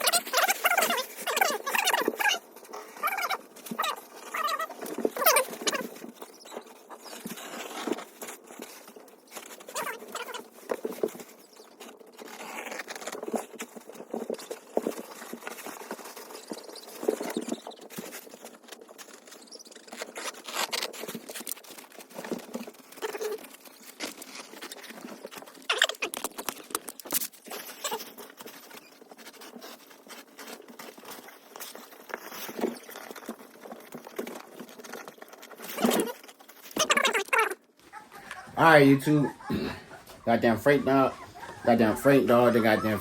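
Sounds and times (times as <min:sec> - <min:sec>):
puppy paws pattering and scratching: 0:00.0 - 0:43.0.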